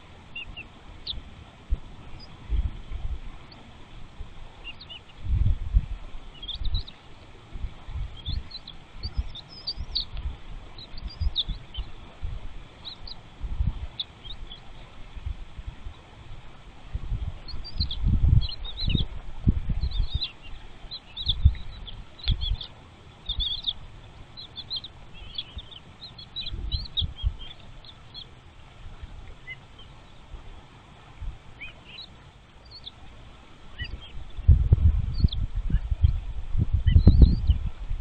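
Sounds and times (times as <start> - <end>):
chicks chirping in nest: 6.4 - 7.0, 8.2 - 10.2, 10.8 - 12.0, 12.8 - 13.2, 17.5 - 19.1, 19.7 - 28.4, 33.7 - 34.4.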